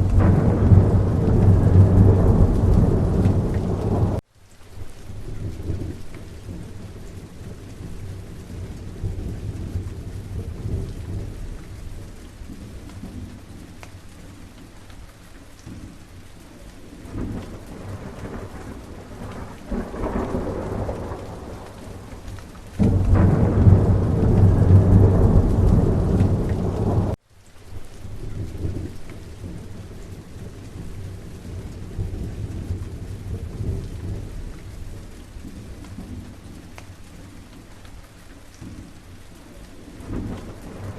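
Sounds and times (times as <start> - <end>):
rolling thunder: 0.0 - 4.2, 5.2 - 13.6, 17.0 - 27.2, 28.2 - 36.7, 40.0 - 40.9
steady rain: 0.0 - 40.9.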